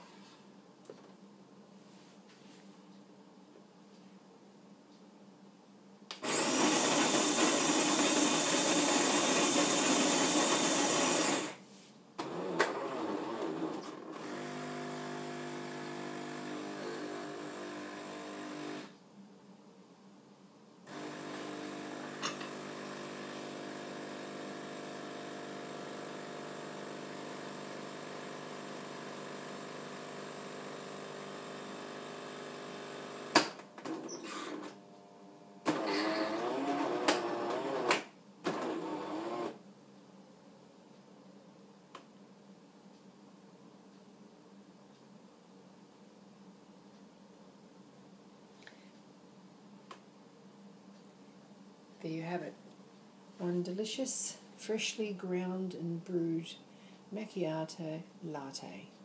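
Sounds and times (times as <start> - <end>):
coffee grinder grinding beans: 6.2 - 11.6, 12.2 - 18.9, 20.9 - 33.4, 35.7 - 39.6
coffee machine pump humming: 6.2 - 11.6, 12.2 - 18.9, 20.9 - 33.4, 34.1 - 39.6.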